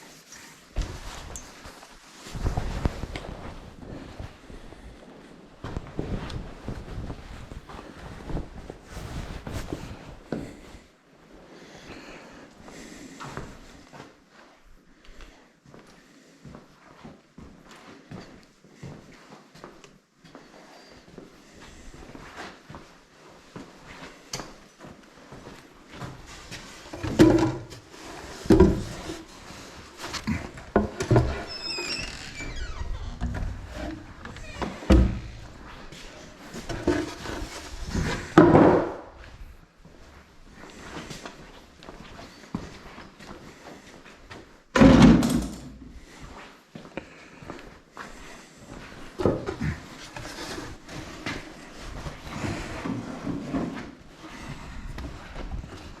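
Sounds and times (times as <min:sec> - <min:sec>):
objects clattering and scraping: 0:26.2 - 0:39.3.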